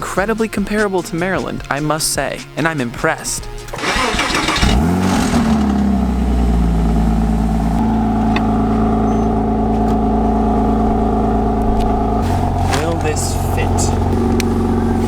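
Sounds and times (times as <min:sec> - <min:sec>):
engine rumbling: 0:03.7 - 0:15.0.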